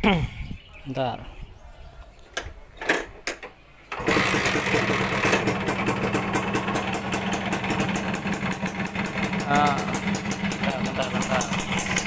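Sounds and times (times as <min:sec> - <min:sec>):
starter clicks: 0:02.4 - 0:12.0
two-stroke motorcycle engine idling: 0:04.0 - 0:12.0.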